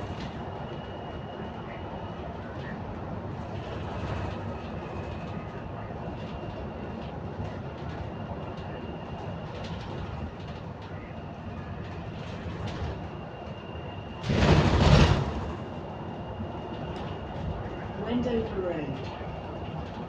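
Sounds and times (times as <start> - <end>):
bus running rumble: 0.0 - 20.0
faint high whine: 4.5 - 20.0.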